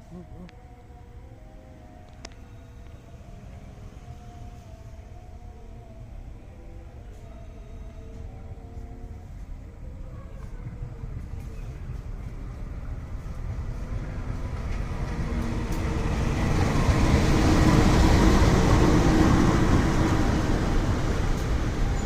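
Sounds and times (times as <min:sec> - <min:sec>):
train rail rumble: 0:09.0 - 0:22.0.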